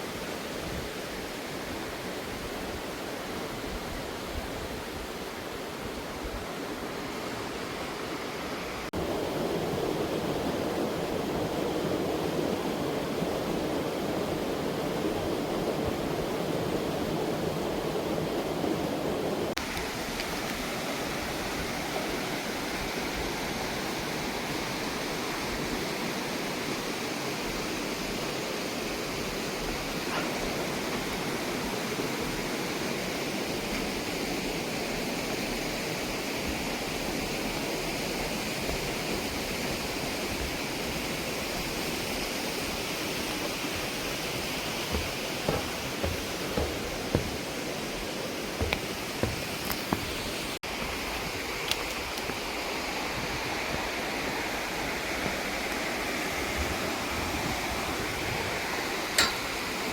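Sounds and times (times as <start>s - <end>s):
stream rushing over rocks: 0.0s - 59.9s
short knocks: 44.4s - 50.2s.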